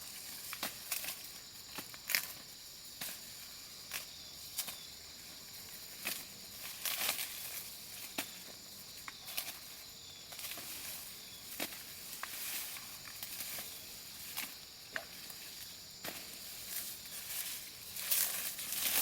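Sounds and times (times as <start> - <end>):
high insect drone: 0.0 - 19.0
dry leaves rustling and crackling: 5.6 - 8.4, 9.2 - 19.0.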